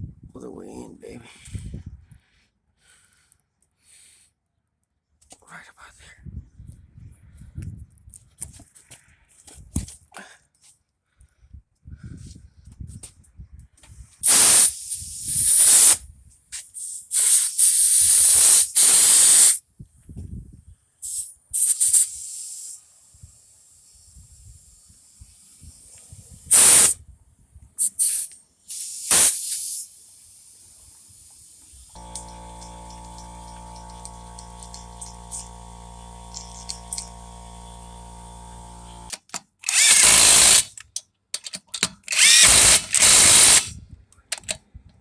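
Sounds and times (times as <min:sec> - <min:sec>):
compressed air hissing: 0:14.2 - 0:16.0, 0:16.8 - 0:19.6, 0:21.0 - 0:27.0, 0:27.8 - 0:39.1, 0:39.7 - 0:40.7, 0:42.1 - 0:43.7
steady hum: 0:32.0 - 0:39.1.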